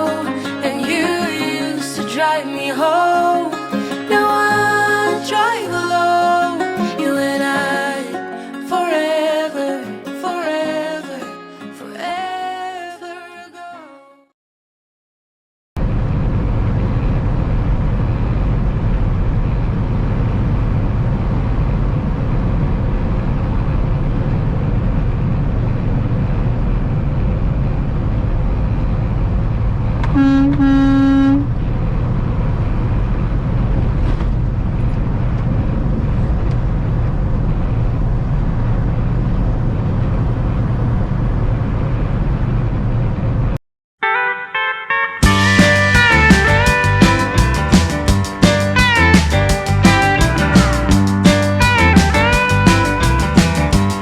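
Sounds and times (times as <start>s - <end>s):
truck engine and road noise: 15.8s - 43.6s, 45.2s - 54.0s
truck horn: 30.1s - 31.5s, 44.0s - 47.1s.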